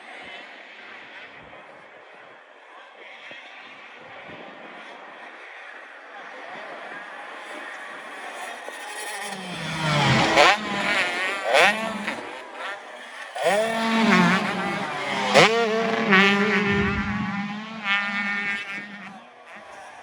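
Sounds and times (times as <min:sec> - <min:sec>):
motocross engines revving: 0:07.3 - 0:20.0.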